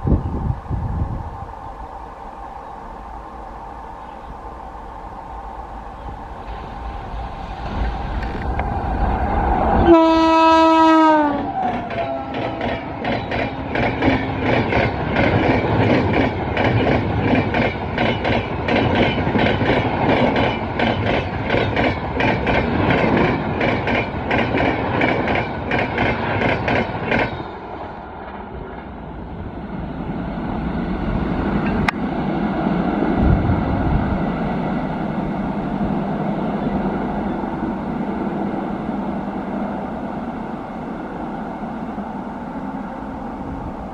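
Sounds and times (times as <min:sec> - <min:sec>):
train rumble: 0:00.0 - 0:43.9
train horn: 0:09.8 - 0:13.0.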